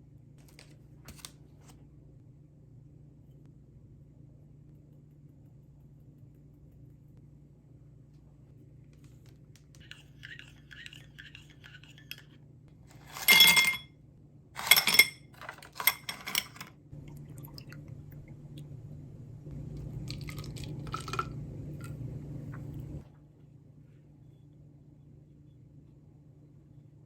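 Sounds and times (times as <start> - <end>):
low hum: 1.7 - 10.4, 16.8 - 27.0
utensils scraping dishes: 9.8 - 12.3, 12.9 - 13.8, 14.6 - 16.7
utensils clinking: 12.9 - 13.9, 14.6 - 16.7.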